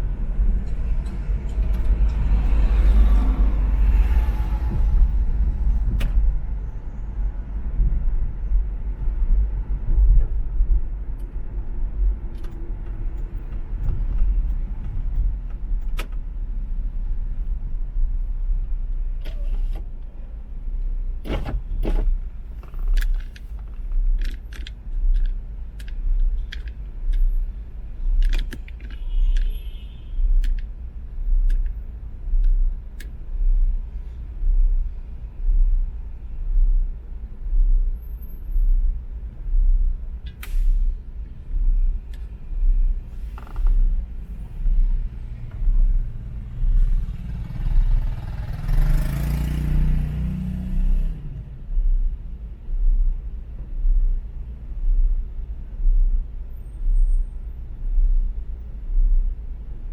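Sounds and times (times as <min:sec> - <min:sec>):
low pulsing throb: 0:00.0 - 0:19.2, 0:19.9 - 0:59.9
road and engine rumble: 0:00.0 - 0:59.9
small clicks and rattles: 0:22.6 - 0:27.3.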